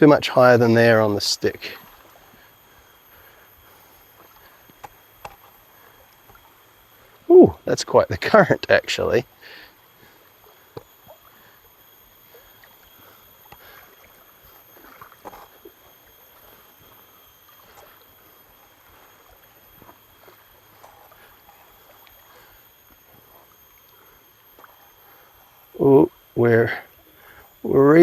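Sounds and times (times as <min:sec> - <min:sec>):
water sloshing around legs: 0:09.3 - 0:26.3.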